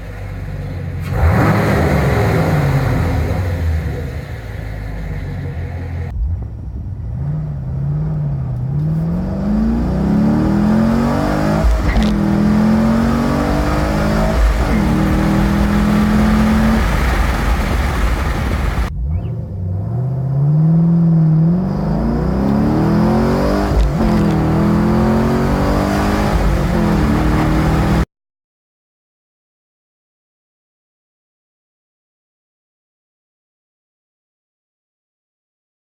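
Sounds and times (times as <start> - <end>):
car engine accelerating through gears: 0.0 - 28.1.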